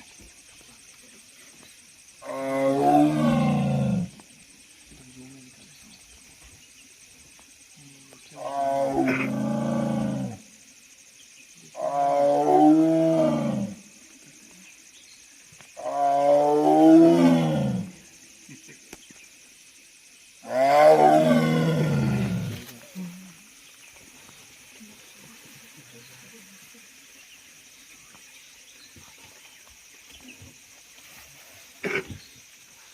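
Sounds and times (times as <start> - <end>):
tiger roaring: 8.4 - 10.4, 20.4 - 22.6.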